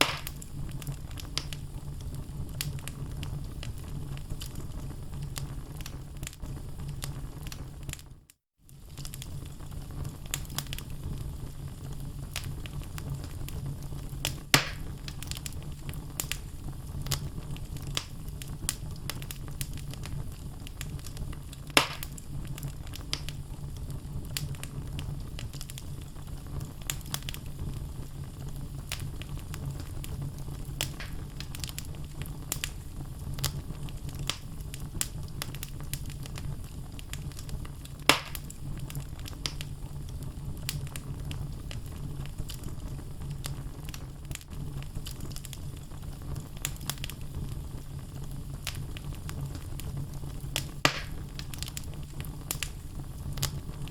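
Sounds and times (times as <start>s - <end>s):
sharp pops of burning wood: 0.0s - 1.6s, 8.8s - 10.9s, 12.3s - 23.4s, 26.8s - 27.8s, 28.8s - 32.8s, 33.4s - 39.9s, 46.5s - 47.8s, 48.6s - 53.9s
logs crackling in a fireplace: 0.0s - 53.9s
low fire rumble: 0.0s - 53.9s.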